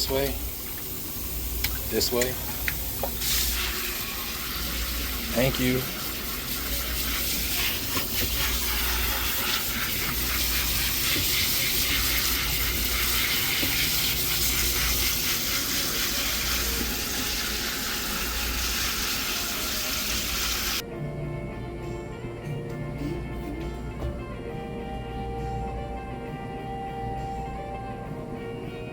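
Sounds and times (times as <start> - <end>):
water running: 0.0 - 20.8
music: 0.0 - 28.9.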